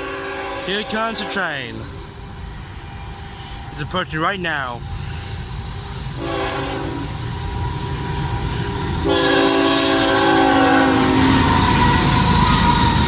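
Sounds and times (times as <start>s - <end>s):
locomotive air horn blasts: 0.0s - 1.5s, 6.2s - 7.1s, 9.0s - 12.8s
train rumbling: 0.0s - 13.0s.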